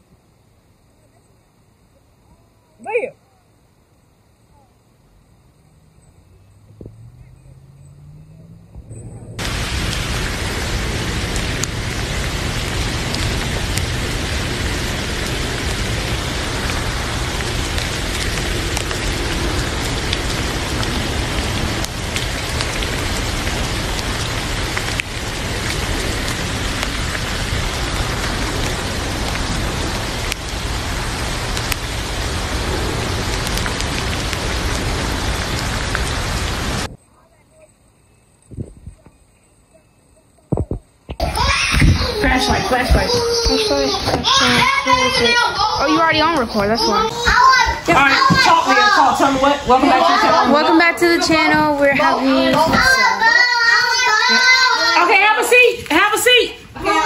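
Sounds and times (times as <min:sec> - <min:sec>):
heavy rain on car roof: 0:09.4 - 0:36.9, 0:41.1 - 0:57.0.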